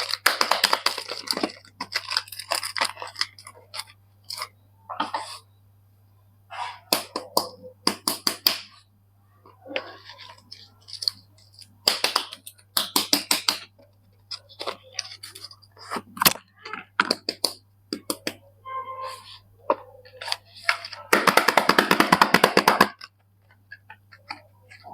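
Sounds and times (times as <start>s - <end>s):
packaging crinkling: 0.0s - 4.5s, 10.0s - 16.4s.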